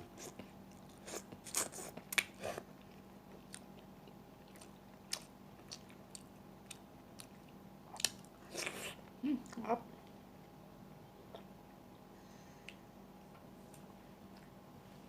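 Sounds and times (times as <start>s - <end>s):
mouth chewing and smacking: 0.2s - 9.6s.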